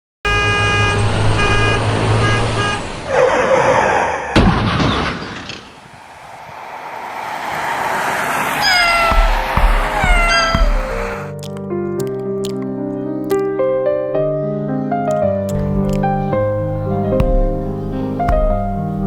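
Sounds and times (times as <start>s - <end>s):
storm rushing noise: 5.4s - 11.4s.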